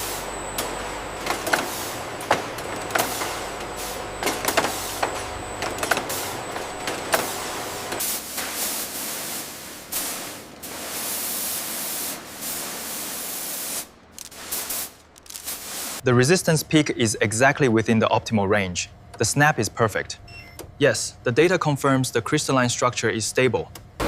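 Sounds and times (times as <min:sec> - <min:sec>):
machinery hum: 0:00.0 - 0:24.0
steady air hiss: 0:08.0 - 0:16.0.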